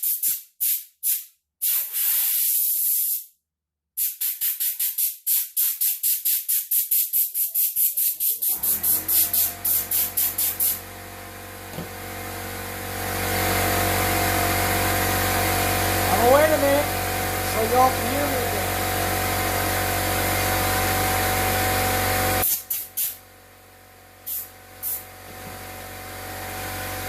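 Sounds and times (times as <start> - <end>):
compressed air blasts: 0.0 - 3.2, 4.0 - 10.8, 22.4 - 23.2, 24.2 - 25.1
air compressor running: 8.0 - 27.0.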